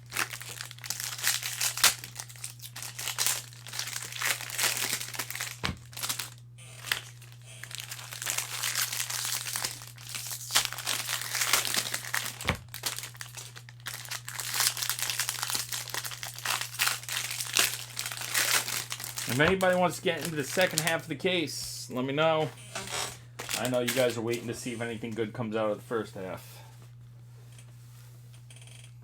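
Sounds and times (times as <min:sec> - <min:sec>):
packaging tearing: 0:00.0 - 0:21.1, 0:22.9 - 0:24.2
foil wrappers crinkling: 0:00.0 - 0:21.2, 0:22.8 - 0:24.5.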